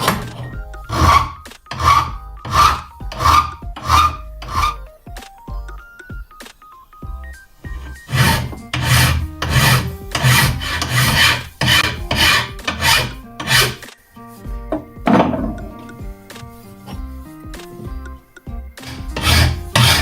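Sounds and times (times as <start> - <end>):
hand file rasping on metal: 0.0 - 4.8, 7.9 - 13.9, 14.8 - 16.0, 18.8 - 20.0
background music: 0.0 - 20.0.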